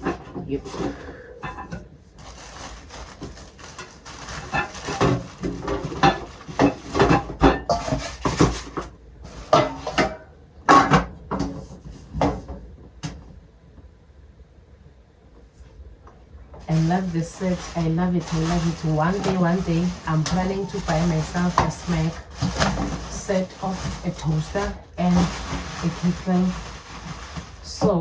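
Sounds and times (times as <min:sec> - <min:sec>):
rustling: 0:00.0 - 0:12.6, 0:16.5 - 0:28.0
kitchen containers knocking together: 0:04.6 - 0:08.9.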